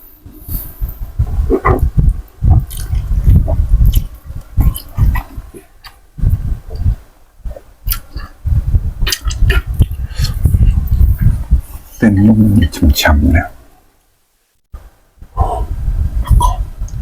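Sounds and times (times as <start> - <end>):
wet chewing mouth sounds: 1.2 - 8.4, 9.0 - 11.5
close-miked chewing of noodles: 1.4 - 7.0
small mouth clicks: 1.5 - 6.0, 7.8 - 8.3, 9.0 - 11.0.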